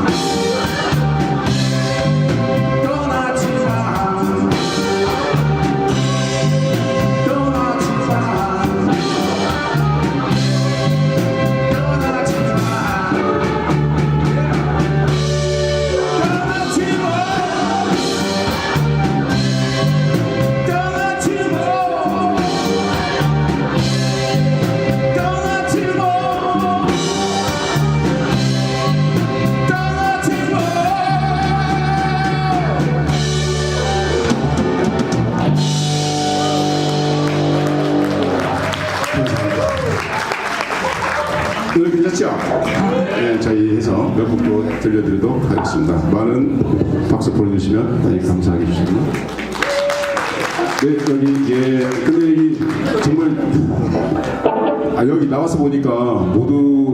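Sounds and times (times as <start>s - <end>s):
live rock band playing: 0.0s - 43.2s, 48.8s - 56.7s
lead singer singing: 2.6s - 5.4s, 6.6s - 10.4s, 11.4s - 14.6s, 15.7s - 18.8s, 20.4s - 23.4s, 24.2s - 27.8s, 29.4s - 33.2s.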